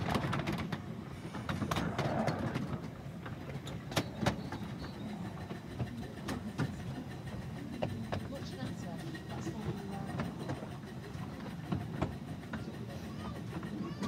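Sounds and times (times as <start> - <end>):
miniature train rumbling: 0.0 - 14.0
wheel and rail clicks: 0.0 - 14.0.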